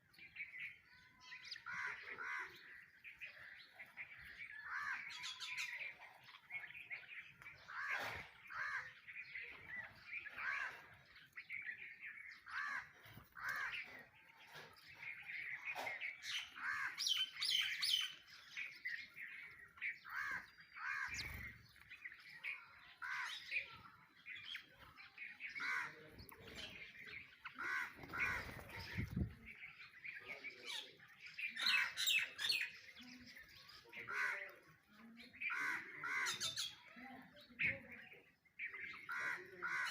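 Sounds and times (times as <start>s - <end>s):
sparrows chirping: 0.0s - 39.9s
crow cawing: 12.5s - 13.8s, 20.1s - 21.2s, 27.6s - 28.4s, 35.5s - 36.6s, 39.0s - 39.9s
mynas calling: 25.4s - 30.2s.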